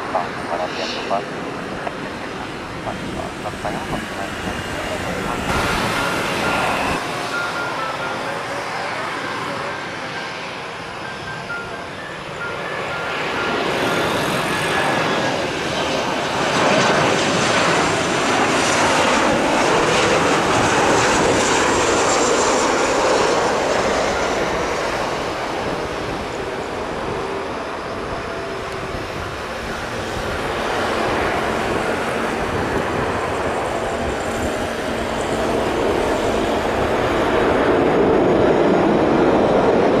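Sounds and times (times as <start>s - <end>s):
faint high whine: 0.0s - 15.2s
jet engines roaring: 0.0s - 40.0s.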